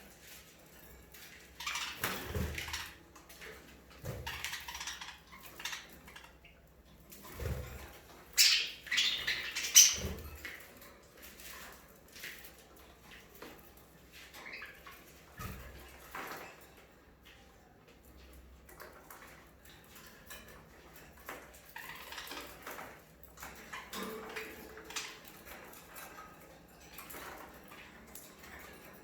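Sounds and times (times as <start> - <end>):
budgerigars chirping: 8.4 - 10.2.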